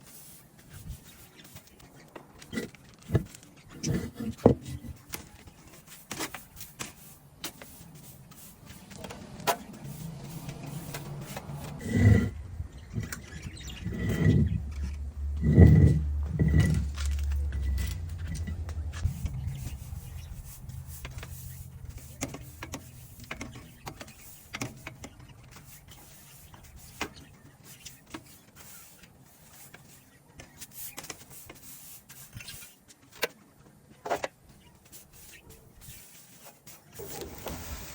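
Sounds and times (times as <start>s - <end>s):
low hum: 9.8s - 23.3s.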